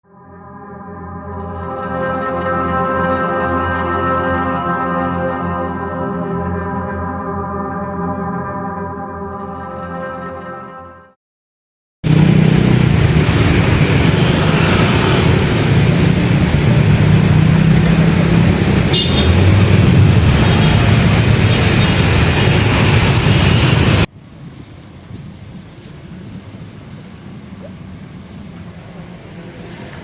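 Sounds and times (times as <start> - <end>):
loud road traffic: 12.0 - 30.0.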